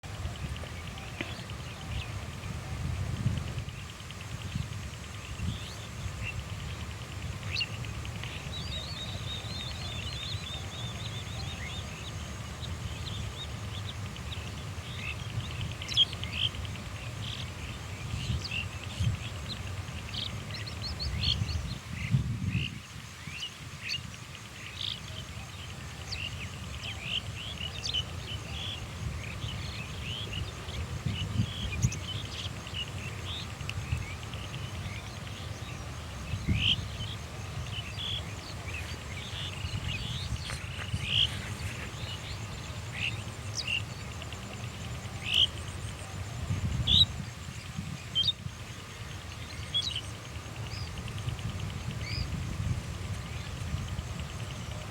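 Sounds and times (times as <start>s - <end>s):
bird chirps and calls: 31.1s - 43.9s.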